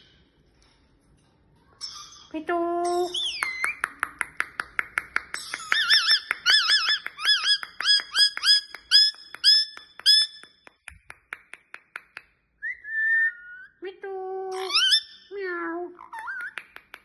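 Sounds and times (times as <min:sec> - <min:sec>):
parrot whistling: 0:12.6 - 0:13.7.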